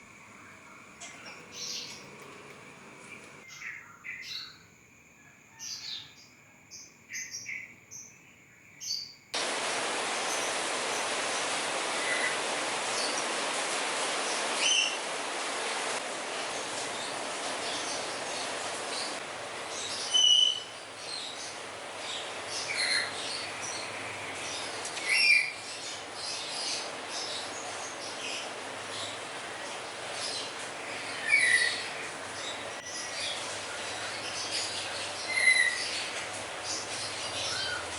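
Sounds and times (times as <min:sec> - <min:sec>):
small birds chirping: 0:00.0 - 0:04.7, 0:14.2 - 0:37.9
steady rushing hiss: 0:09.4 - 0:37.9.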